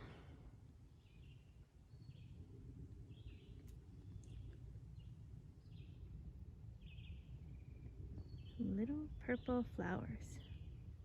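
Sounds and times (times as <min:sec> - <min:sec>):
low steady rumble: 0:00.0 - 0:11.0
songbirds chirping: 0:00.0 - 0:11.0.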